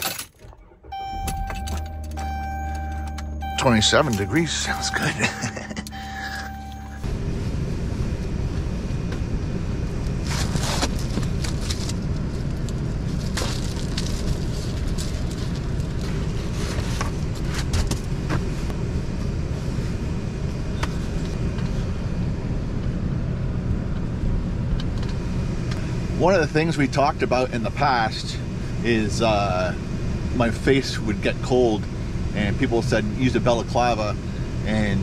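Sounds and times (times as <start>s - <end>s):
van engine idling: 0.6s - 24.4s.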